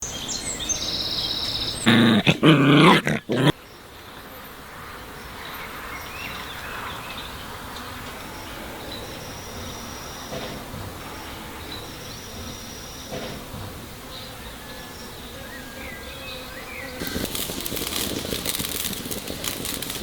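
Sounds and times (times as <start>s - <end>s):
loud animal call: 1.8s - 3.5s, 17.0s - 20.0s
insects buzzing: 15.1s - 20.0s.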